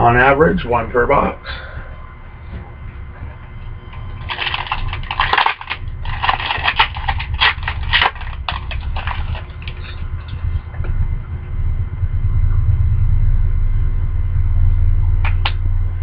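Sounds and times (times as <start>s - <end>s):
steady low hum: 0.0s - 16.0s
wrapper crinkling and rustling: 4.2s - 10.3s.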